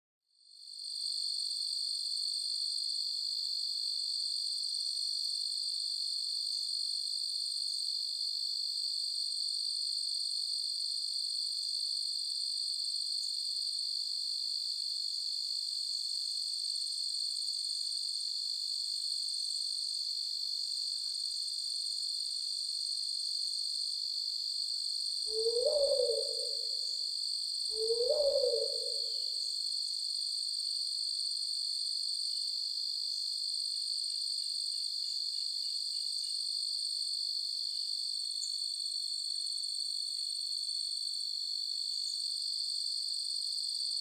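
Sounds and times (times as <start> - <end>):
crickets trilling: 24.8 - 30.0.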